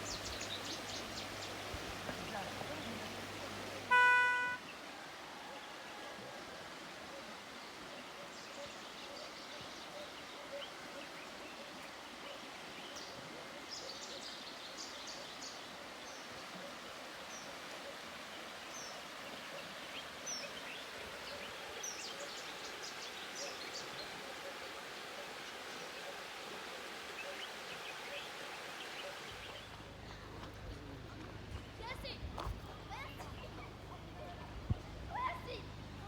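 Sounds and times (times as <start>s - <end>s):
river water running: 0.0s - 36.0s.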